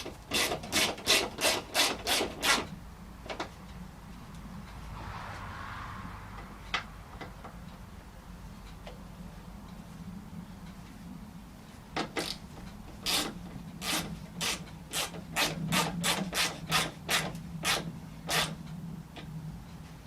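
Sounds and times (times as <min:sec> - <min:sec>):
hand ratchet rasping: 0:00.0 - 0:02.7, 0:13.0 - 0:18.6
steady low hum: 0:02.7 - 0:15.0.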